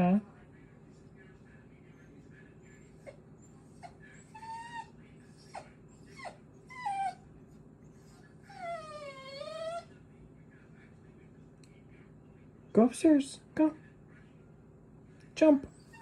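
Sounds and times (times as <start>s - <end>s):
small dog whining: 2.9s - 7.2s, 7.9s - 9.9s, 15.7s - 16.0s.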